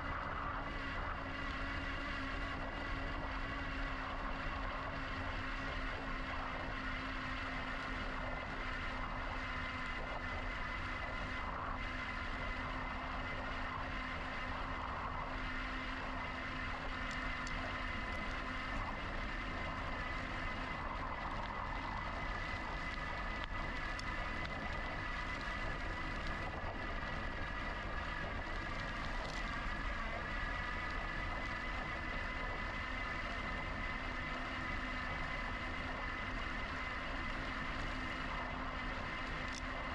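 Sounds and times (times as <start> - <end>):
faint high whine: 0.0 - 39.9.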